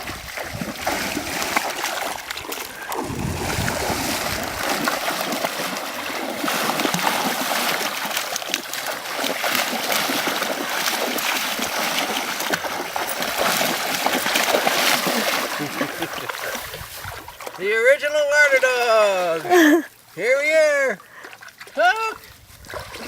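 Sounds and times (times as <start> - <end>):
shallow water splashing: 0.0 - 23.0.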